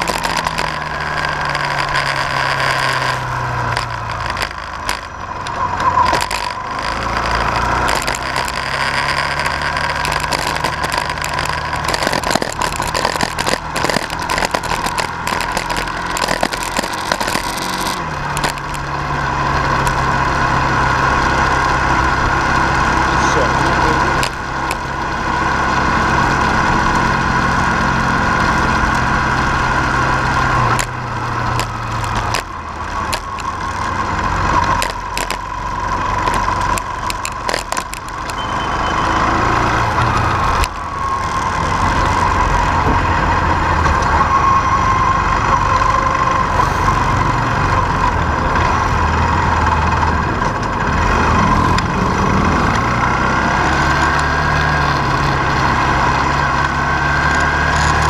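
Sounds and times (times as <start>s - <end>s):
continuous whine: 0.0s - 58.0s
vehicle engine running: 0.0s - 58.0s.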